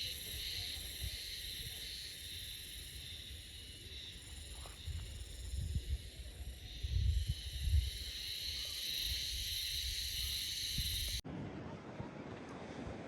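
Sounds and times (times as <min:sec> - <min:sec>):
high-pitched insect chorus: 0:00.0 - 0:11.2
wind on microphone: 0:04.5 - 0:08.1.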